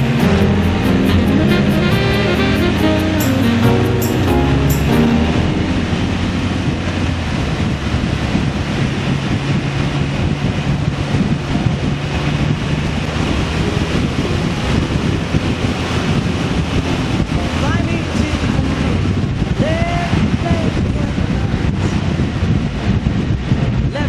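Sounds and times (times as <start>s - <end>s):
engine drone: 0.0s - 19.6s
wind rushing over microphone: 5.2s - 24.0s.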